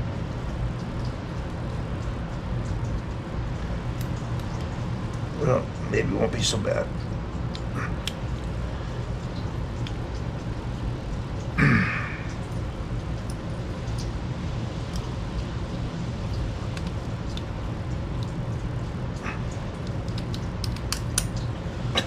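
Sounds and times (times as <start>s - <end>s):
steady low hum: 0.0s - 22.0s
small metal parts clicking: 19.8s - 21.5s.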